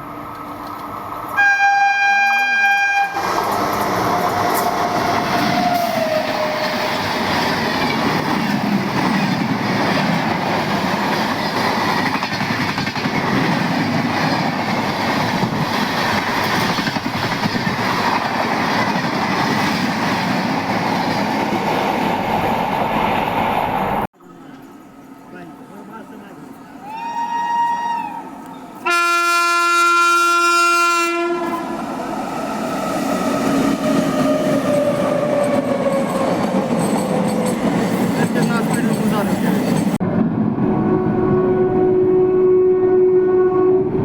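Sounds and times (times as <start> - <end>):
train rumbling past: 0.0 - 44.0
train horn blast: 1.4 - 3.2, 28.8 - 31.7, 40.6 - 44.0.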